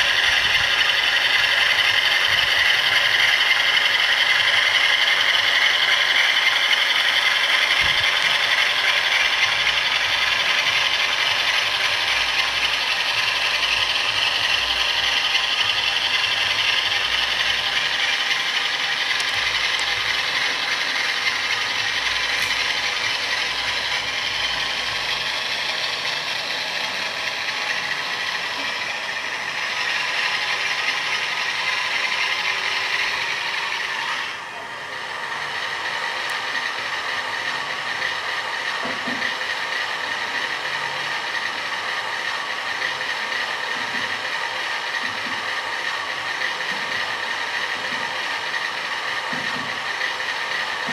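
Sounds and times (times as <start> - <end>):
model train drive rattle: 0.0 - 28.9
tinny diesel engine sound: 0.0 - 50.9.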